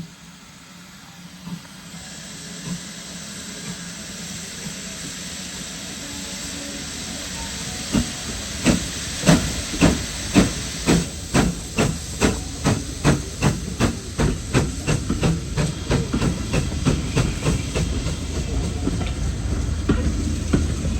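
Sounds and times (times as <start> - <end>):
steam hissing: 0.0 - 20.9
steam locomotive chuffing: 0.0 - 20.9.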